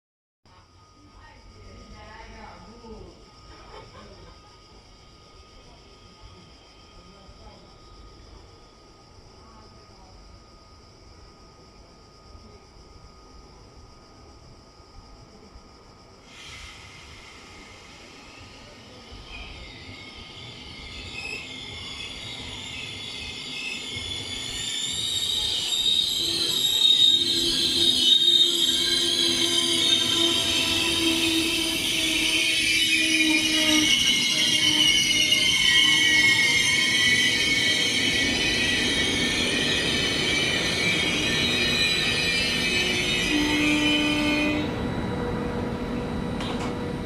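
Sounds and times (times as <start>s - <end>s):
train rumble: 1.2s - 47.0s
wheels and brakes squealing: 16.4s - 47.0s.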